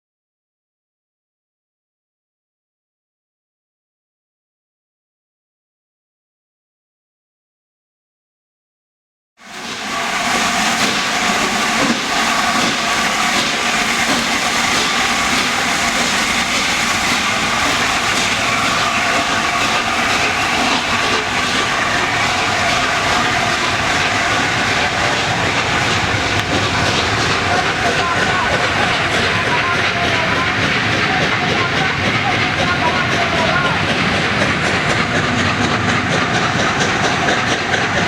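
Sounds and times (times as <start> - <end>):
train rumbling and hissing: 9.4 - 38.0.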